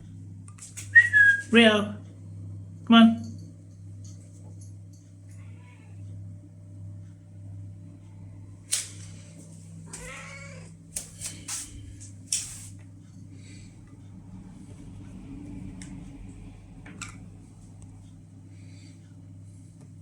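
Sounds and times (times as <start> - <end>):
steady low hum: 0.0 - 20.0
cat meowing: 5.4 - 6.0, 9.9 - 10.8.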